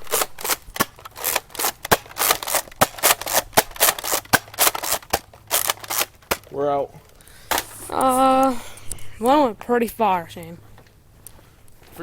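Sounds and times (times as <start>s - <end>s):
plastic clacks of toy blaster: 0.1s - 6.5s.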